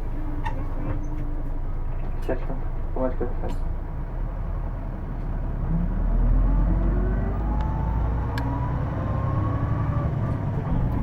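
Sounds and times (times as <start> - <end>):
bus diesel engine rumble: 0.0 - 11.0.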